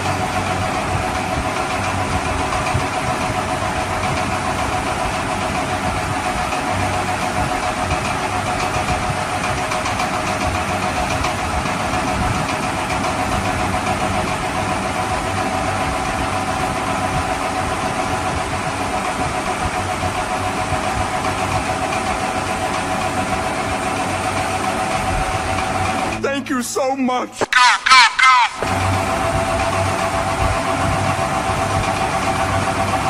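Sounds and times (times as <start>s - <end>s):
motor running with whine: 28.6s - 33.0s.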